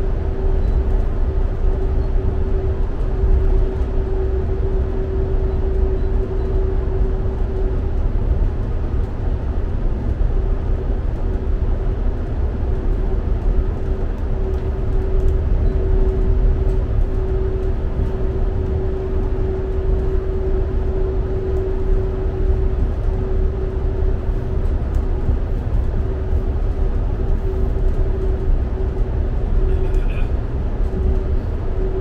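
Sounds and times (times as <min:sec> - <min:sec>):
mid-pitched whine: 0:00.0 - 0:32.0
underfloor engine: 0:00.0 - 0:32.0
wheels rumbling on rail: 0:00.0 - 0:32.0.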